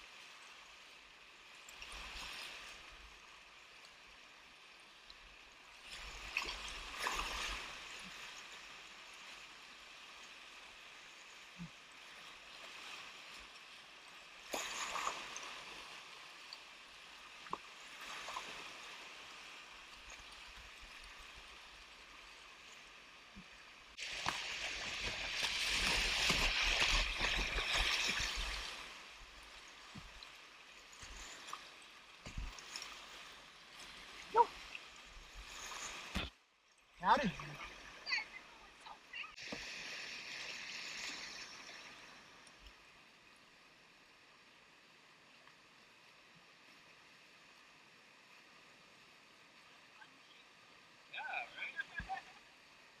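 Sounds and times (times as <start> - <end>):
churning water: 5.8 - 42.2
whitewater rushing and splashing: 23.9 - 36.3.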